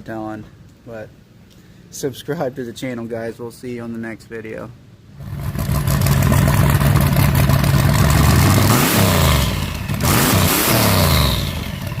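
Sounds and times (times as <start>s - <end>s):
vehicle engine revving: 5.2s - 12.0s.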